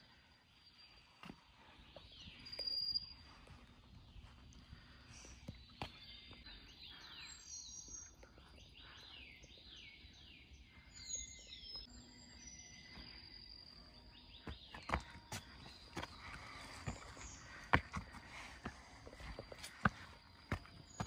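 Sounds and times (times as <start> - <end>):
birds whistling: 4.3 - 21.0.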